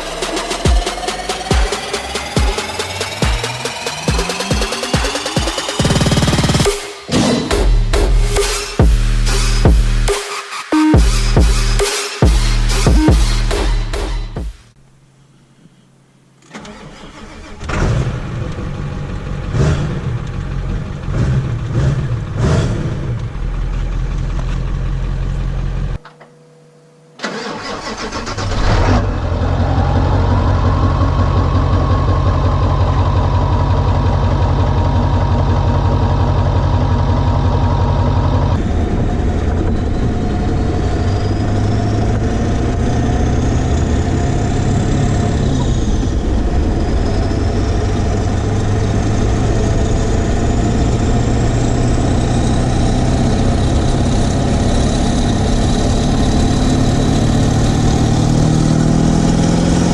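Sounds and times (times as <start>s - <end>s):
diesel engine idling: 18.5s - 26.0s, 27.3s - 43.6s.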